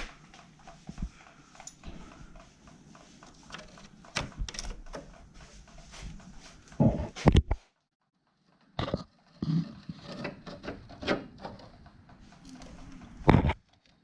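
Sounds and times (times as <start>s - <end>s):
knocks clicks and clunks: 0.0s - 7.6s.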